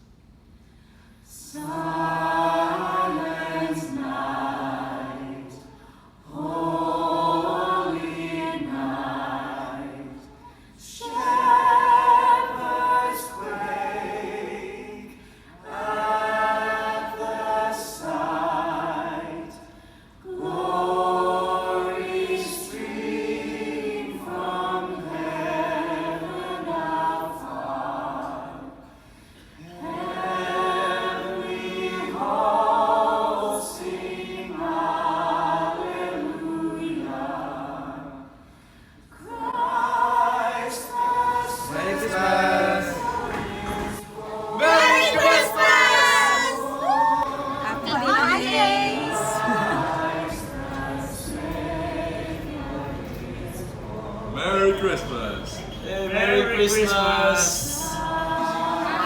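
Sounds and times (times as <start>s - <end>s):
choir singing: 1.4s - 28.8s, 29.6s - 38.5s, 39.1s - 59.0s.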